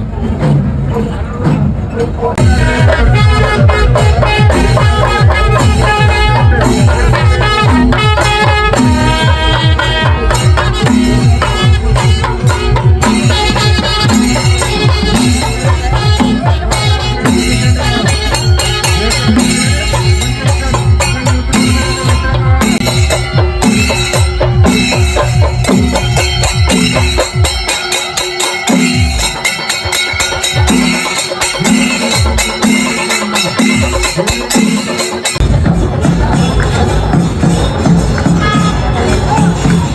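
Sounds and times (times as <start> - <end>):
steady drumbeat: 0.0 - 39.9
jingling cymbal strokes: 10.3 - 35.4.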